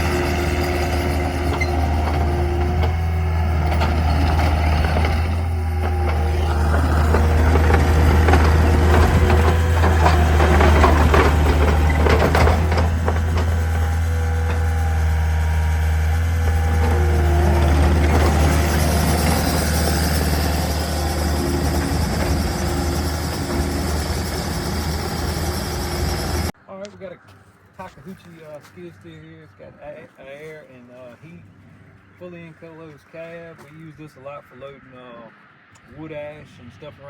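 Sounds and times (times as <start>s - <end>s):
pitch-shifting whine: 0.0s - 26.5s
rattling clatter: 0.0s - 26.5s
diesel engine running: 0.0s - 26.6s.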